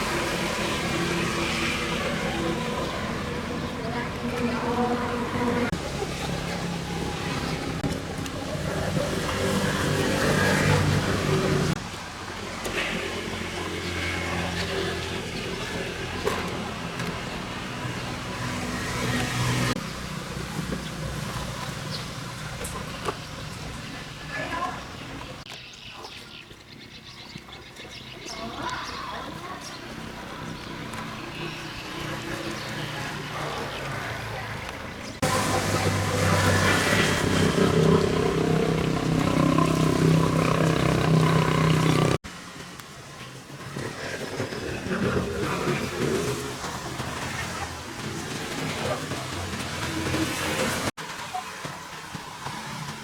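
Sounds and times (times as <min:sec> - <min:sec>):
machine humming: 0:35.2 - 0:42.2.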